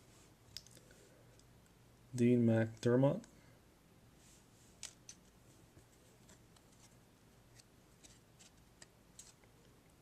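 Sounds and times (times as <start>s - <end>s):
trading cards clicking and rustling: 4.8s - 9.7s.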